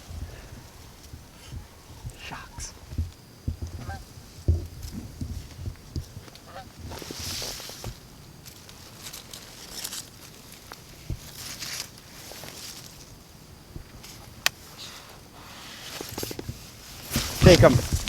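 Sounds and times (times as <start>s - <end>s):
rustling: 0.0s - 13.2s, 13.8s - 18.0s
geese honking: 3.8s - 4.1s, 6.4s - 6.8s.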